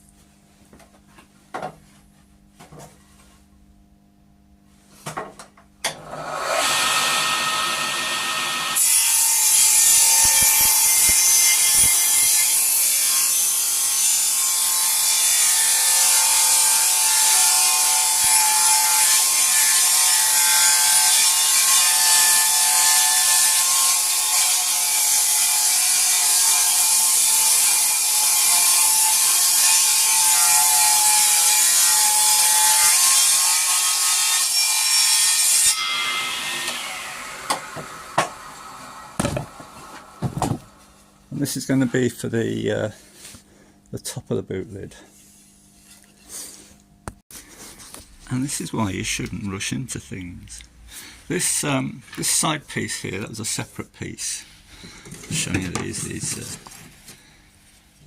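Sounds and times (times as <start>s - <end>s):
power tool cutting timber: 5.9s - 40.8s.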